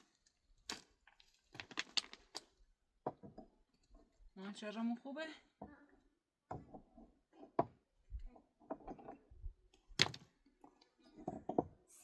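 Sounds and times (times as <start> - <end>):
objects knocking and clicking: 0.7 - 4.1, 6.4 - 11.8.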